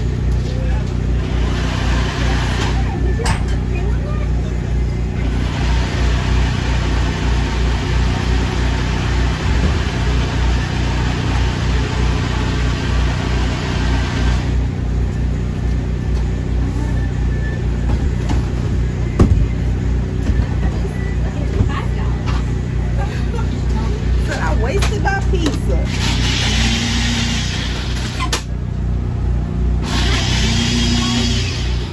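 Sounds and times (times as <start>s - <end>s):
engine rumbling: 0.0s - 31.9s
loud hiss: 29.8s - 31.9s.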